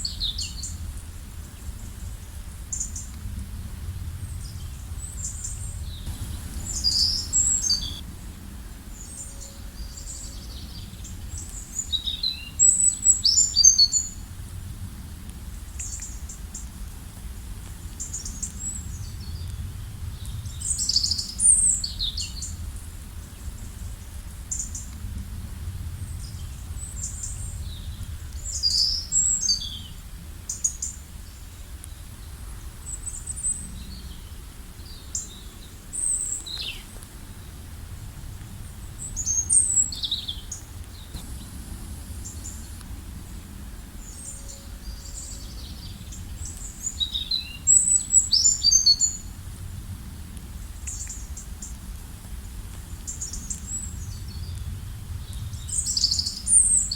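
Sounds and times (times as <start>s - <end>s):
low background rumble: 3.2s - 8.4s, 36.8s - 46.9s
songbirds chirping and trilling: 4.4s - 8.0s.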